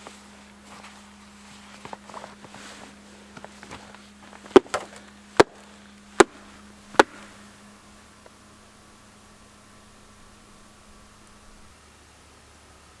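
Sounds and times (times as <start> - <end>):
soft crunching steps: 0.0 - 11.7
sharp loud knocks: 4.5 - 7.4.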